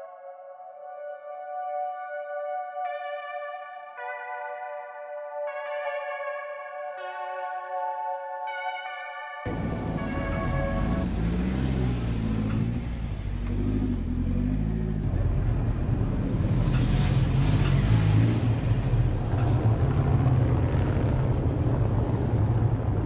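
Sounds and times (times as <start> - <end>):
synth music: 0.0 - 22.0
car engine running: 9.5 - 23.0.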